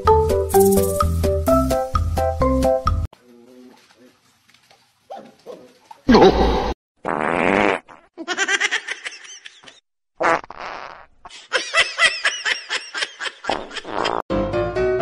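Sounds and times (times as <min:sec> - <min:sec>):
fart noise: 0:07.0 - 0:08.1, 0:10.2 - 0:11.1, 0:13.8 - 0:14.2.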